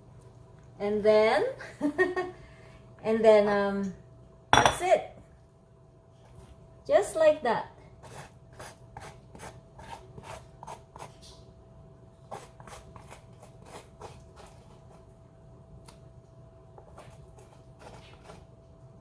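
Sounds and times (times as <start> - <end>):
faint steady hum: 0.0 - 19.0
fork scraping squash: 12.3 - 15.1, 16.8 - 18.5.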